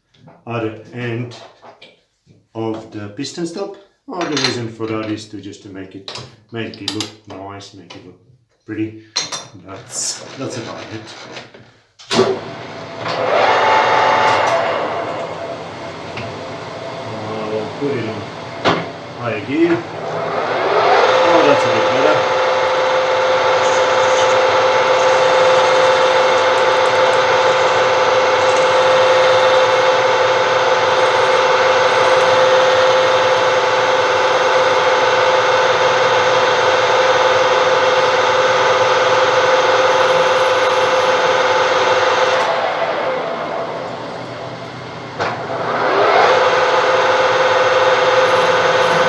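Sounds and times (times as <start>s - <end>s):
lathe click: 12.1s - 49.0s
lathe cutting plastic: 12.1s - 49.0s
lathe motor whine: 12.2s - 49.0s.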